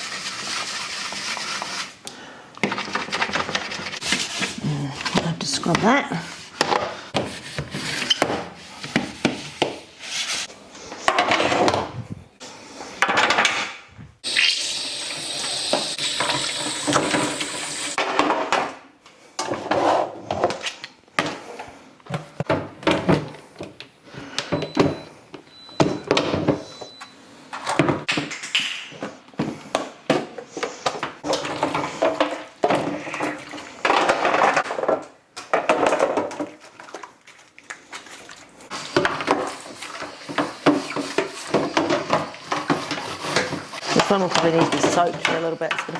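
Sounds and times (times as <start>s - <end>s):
plastic shelves clattering in sink: 2.6s - 10.3s, 11.0s - 12.0s, 13.0s - 13.9s, 15.7s - 18.8s, 22.1s - 23.8s, 25.8s - 27.0s, 27.6s - 37.1s, 38.7s - 45.9s
tap running hard: 15.0s - 18.0s.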